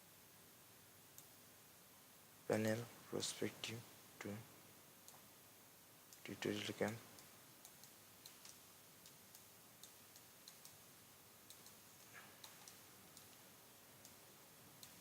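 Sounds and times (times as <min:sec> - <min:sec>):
computer mouse clicks: 0:06.1 - 0:10.8, 0:11.4 - 0:15.0.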